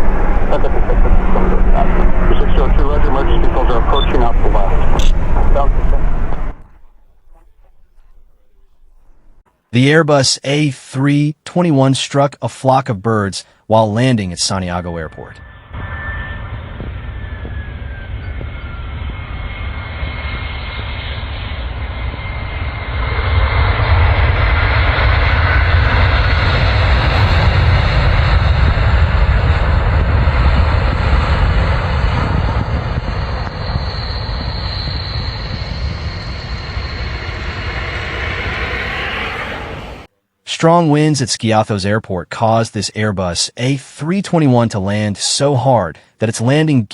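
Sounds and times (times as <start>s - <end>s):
faint falling whine: 0.0s - 9.4s, 14.0s - 40.1s
jet engine and airflow rumble: 0.0s - 9.4s, 13.8s - 40.1s.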